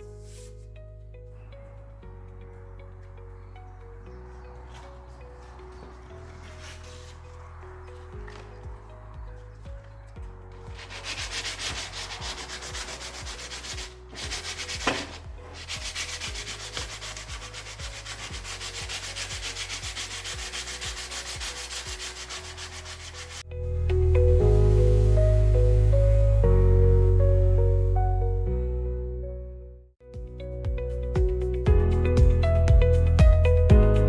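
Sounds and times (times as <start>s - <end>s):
background music: 0.0s - 34.0s
sandpaper rubbing on metal: 6.3s - 7.2s, 10.7s - 23.4s.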